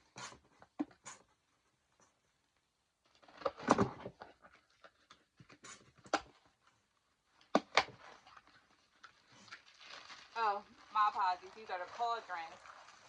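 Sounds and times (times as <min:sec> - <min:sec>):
packaging rustling: 0:07.9 - 0:13.0.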